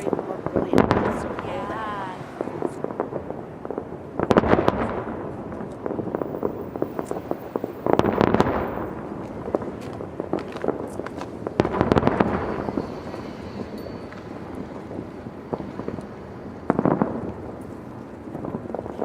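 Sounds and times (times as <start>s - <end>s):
firework cracks and crackling: 0.0s - 19.0s
firework shells bursting: 2.9s - 18.9s.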